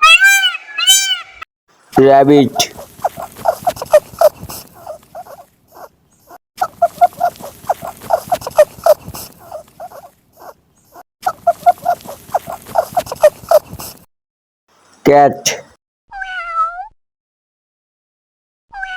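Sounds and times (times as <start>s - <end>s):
rabbit squeaking: 0.0s - 1.4s, 2.5s - 14.0s.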